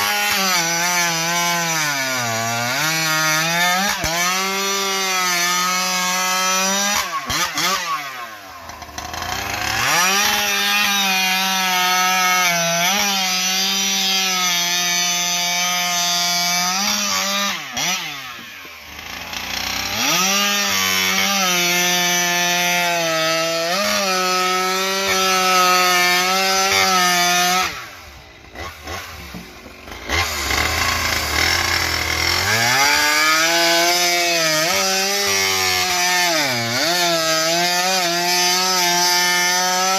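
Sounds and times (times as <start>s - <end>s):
chainsaw cutting a log: 0.0s - 39.9s.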